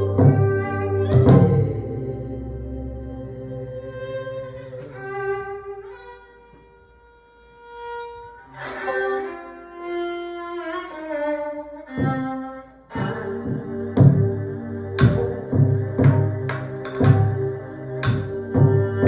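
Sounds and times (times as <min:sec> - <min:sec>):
drum strokes: 0:00.0 - 0:02.2, 0:15.0 - 0:19.0
bowed strings and wind melody: 0:00.0 - 0:19.0.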